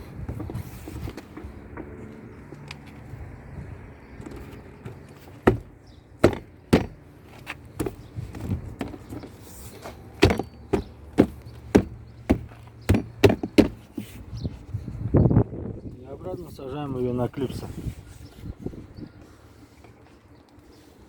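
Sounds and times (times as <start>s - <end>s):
hand knocking on door panel: 5.4s - 7.0s, 10.2s - 13.8s.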